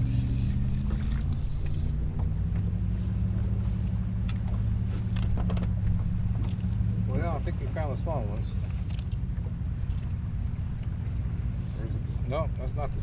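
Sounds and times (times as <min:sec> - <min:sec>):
boat engine droning: 0:00.0 - 0:13.0
gear clicking and knocking: 0:04.2 - 0:06.8.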